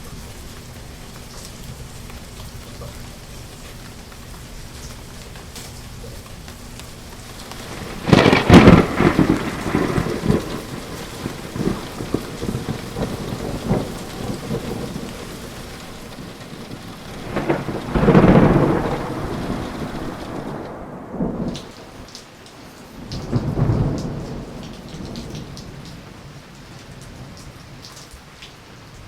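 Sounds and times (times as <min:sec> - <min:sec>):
rain falling: 0:00.0 - 0:29.0
rolling thunder: 0:07.2 - 0:22.1, 0:23.0 - 0:26.4.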